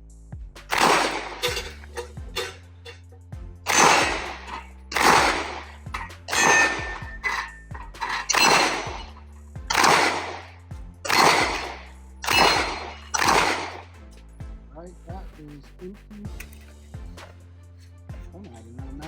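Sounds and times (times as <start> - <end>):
background music: 0.0 - 19.0
pistol shots: 0.7 - 2.6, 3.7 - 7.2, 7.9 - 10.5, 11.1 - 13.9
ringing steel plate hits: 0.8 - 3.0, 3.7 - 10.5, 11.1 - 13.8.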